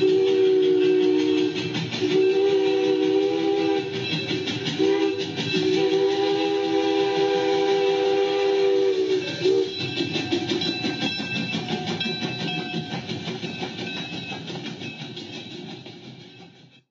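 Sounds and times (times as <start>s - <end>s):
train horn: 0.0s - 9.9s
train rumble and wheel clatter: 0.0s - 16.9s.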